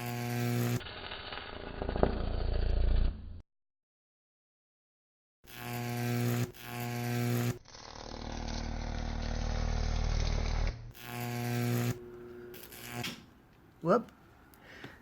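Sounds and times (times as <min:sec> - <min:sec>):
high-voltage arc buzzing: 0:00.0 - 0:03.3, 0:05.5 - 0:13.4.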